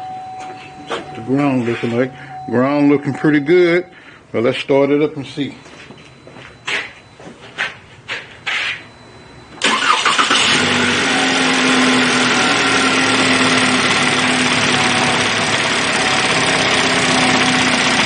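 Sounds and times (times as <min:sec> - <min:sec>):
car engine cranking and idling: 0:09.6 - 0:18.0.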